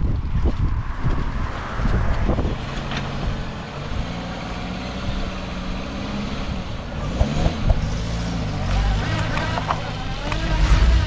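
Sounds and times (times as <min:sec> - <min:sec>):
wind buffeting microphone: 0:00.0 - 0:03.6
car engine running: 0:06.6 - 0:11.0.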